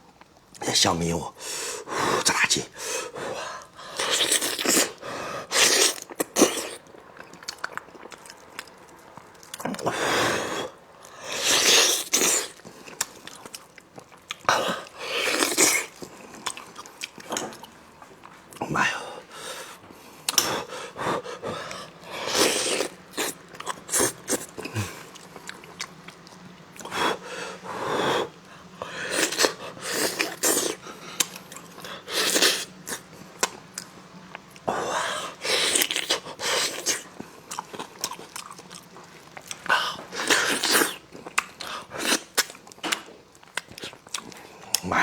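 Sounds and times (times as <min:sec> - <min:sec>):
noisy eating bursts: 0:00.5 - 0:45.0
person chewing and biting: 0:03.9 - 0:09.9, 0:11.3 - 0:18.6, 0:22.0 - 0:27.0, 0:29.1 - 0:34.7, 0:35.4 - 0:44.9.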